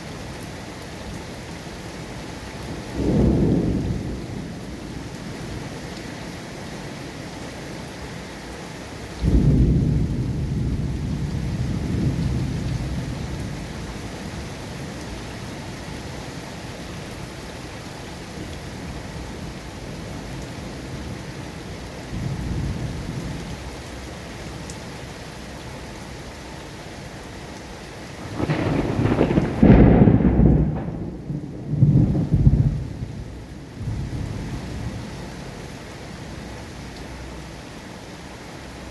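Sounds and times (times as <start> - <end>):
steady rain: 0.0 - 38.9
low thunder rumbling: 2.7 - 5.8, 9.2 - 15.0, 22.1 - 23.6, 28.2 - 35.3.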